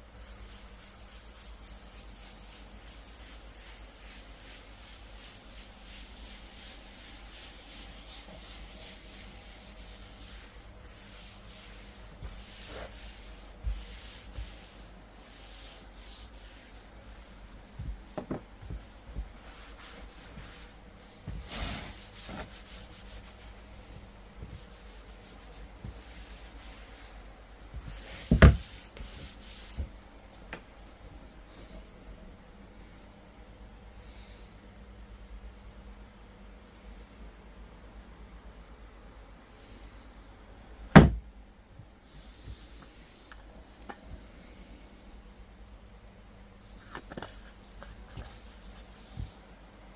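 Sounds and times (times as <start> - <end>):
hand rubbing wooden board: 0.1 - 30.0.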